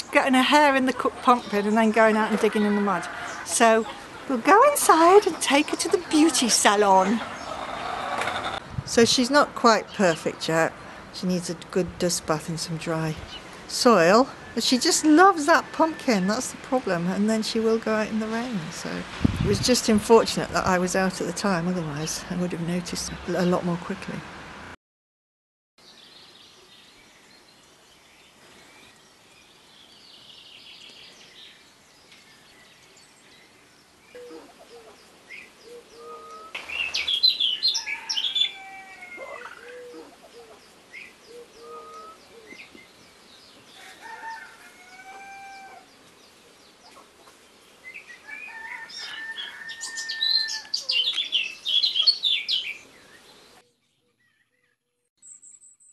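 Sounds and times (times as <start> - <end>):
birds chirping: 0.0 - 24.2, 25.8 - 55.9
chicken calls: 0.5 - 8.6, 35.6 - 40.6, 41.3 - 42.6, 43.8 - 45.9, 48.2 - 52.5.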